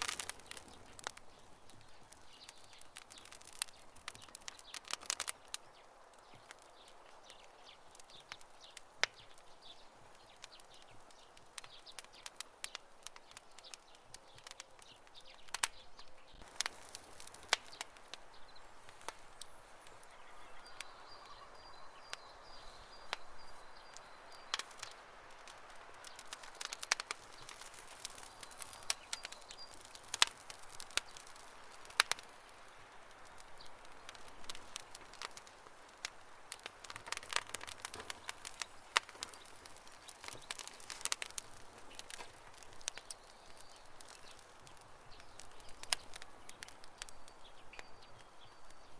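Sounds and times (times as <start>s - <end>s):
campfire crackling: 0.0s - 48.9s
faint high chirping: 17.7s - 24.9s.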